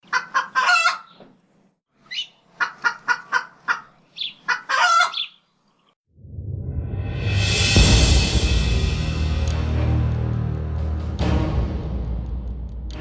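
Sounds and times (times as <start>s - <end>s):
chicken squawk: 0.0s - 1.2s, 2.1s - 5.4s
chicken clucking: 0.0s - 1.3s, 2.1s - 5.4s
music: 6.5s - 13.0s.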